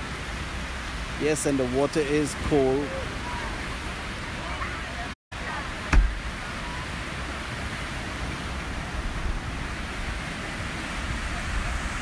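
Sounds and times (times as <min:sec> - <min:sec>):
water: 0:00.0 - 0:12.0
wind rumble on microphone: 0:00.0 - 0:12.0
sharp thump: 0:05.9 - 0:06.2.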